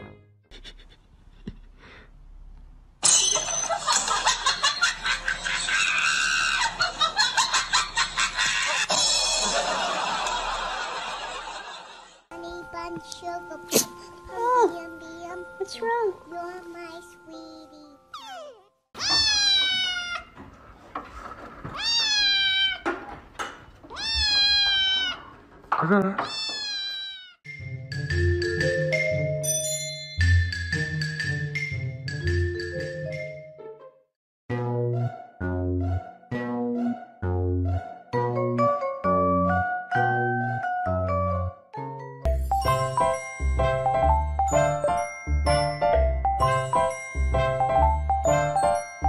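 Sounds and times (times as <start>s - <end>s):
person laughing and shrieking: 5.7s - 6.9s
kitten meowing loudly: 18.2s - 20.3s, 21.8s - 22.9s, 23.9s - 25.3s, 26.2s - 27.4s.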